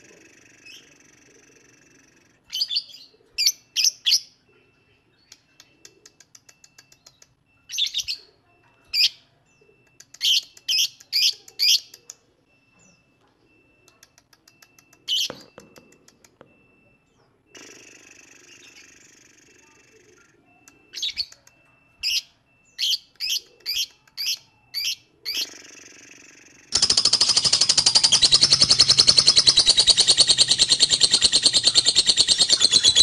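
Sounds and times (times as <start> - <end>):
fast ticking bird chatter: 22.1 - 33.0
bird chirping sharply: 26.8 - 33.0.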